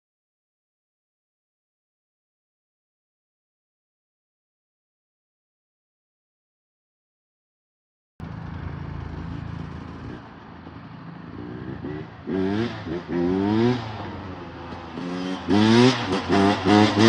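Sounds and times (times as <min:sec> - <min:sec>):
dirt bike engine revving: 0:11.3 - 0:17.0.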